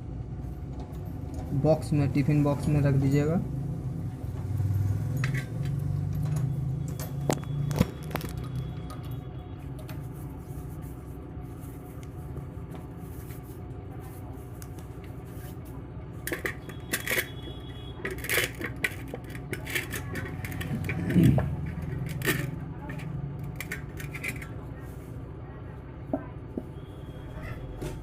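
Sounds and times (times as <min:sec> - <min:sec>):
kitchen utensils clinking: 0:04.8 - 0:09.2, 0:16.3 - 0:24.6.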